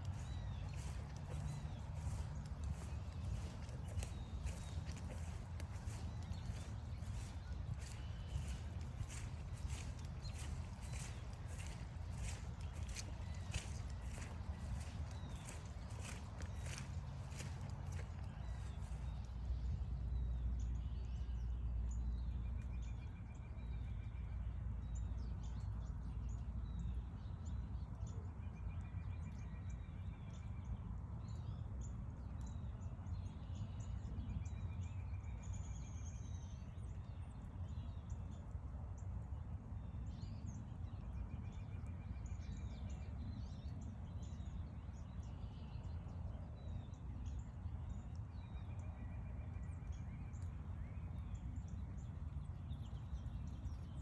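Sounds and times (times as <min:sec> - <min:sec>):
steady low rumble: 0:00.0 - 0:20.8
birds chipping and calling: 0:00.1 - 0:19.0.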